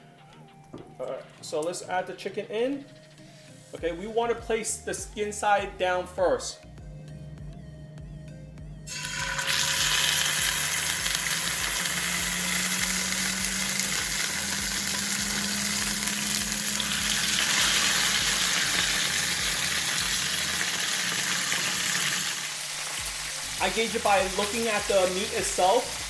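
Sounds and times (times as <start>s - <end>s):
chicken sizzling in hot oil: 8.9s - 26.0s.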